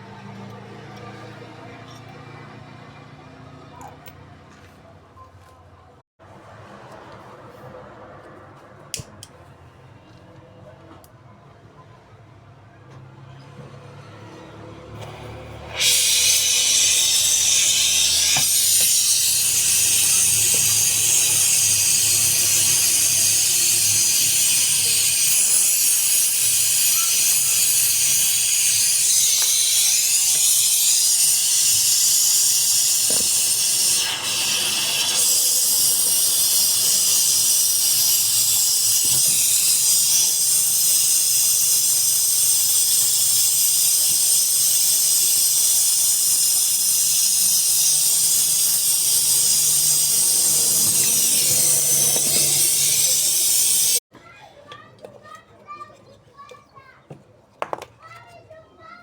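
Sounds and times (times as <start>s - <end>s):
loud steady hiss: 15.0s - 54.0s.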